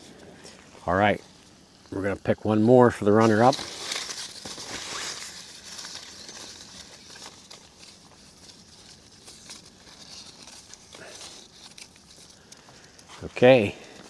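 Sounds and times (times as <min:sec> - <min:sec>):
paper slips rustling: 0:02.8 - 0:14.0.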